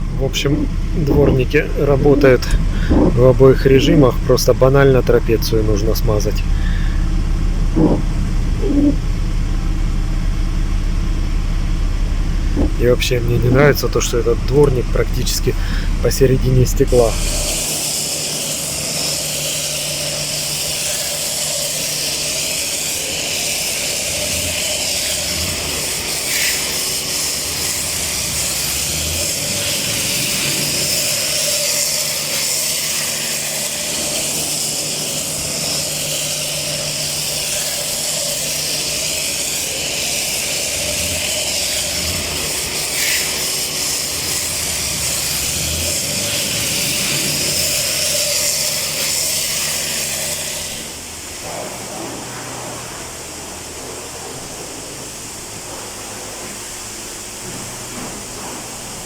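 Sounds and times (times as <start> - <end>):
low hum: 0.0 - 17.9, 43.7 - 59.0
pressure washer jet hissing: 0.0 - 59.0.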